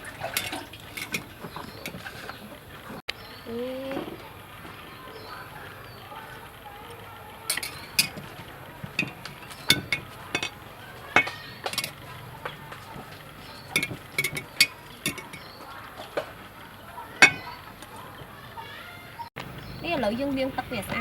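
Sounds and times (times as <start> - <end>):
kitchen utensils knocking and clinking: 0.0 - 3.0, 7.4 - 16.4, 17.0 - 18.4.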